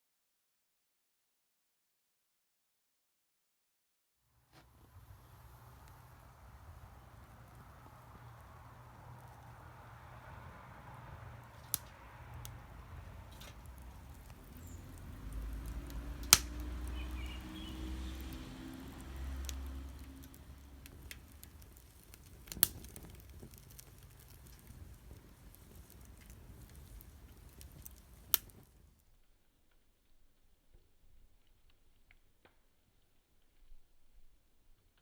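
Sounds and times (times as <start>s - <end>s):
wood fire crackling: 4.4s - 35.0s
sharp pops: 11.4s - 28.7s.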